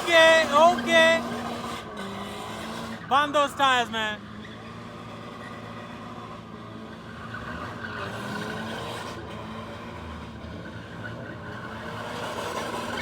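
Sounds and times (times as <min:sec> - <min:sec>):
car engine revving hard: 0:00.0 - 0:03.1.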